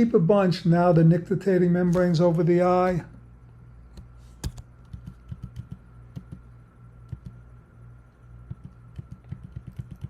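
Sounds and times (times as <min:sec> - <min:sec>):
steady low hum: 0:00.0 - 0:10.0
computer keys and mouse clicking: 0:04.0 - 0:06.4, 0:07.1 - 0:07.4, 0:08.5 - 0:10.0.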